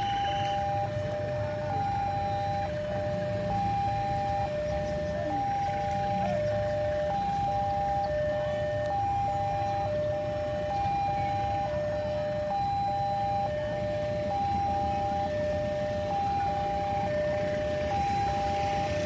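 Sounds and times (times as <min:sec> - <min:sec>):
level-crossing alarm two tones: 0:00.0 - 0:19.0.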